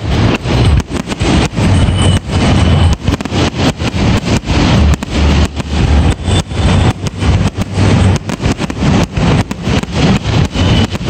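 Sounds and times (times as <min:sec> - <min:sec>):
continuous low rumble: 0:00.0 - 0:11.0
fireworks bursting: 0:00.0 - 0:11.0.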